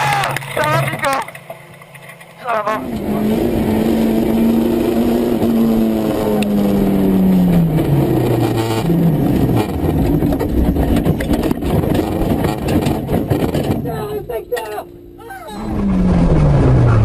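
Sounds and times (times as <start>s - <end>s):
rally car engine revving: 2.3s - 17.0s
car knocking on road surface: 9.6s - 13.9s.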